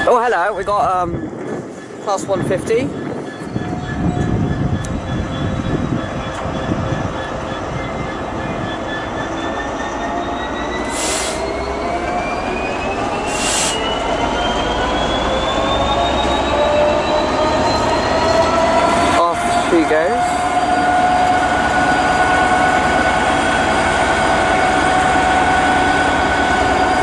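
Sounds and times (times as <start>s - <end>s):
diesel train engine pulling away: 0.0s - 27.0s
air hissing: 10.9s - 11.4s, 13.2s - 13.9s.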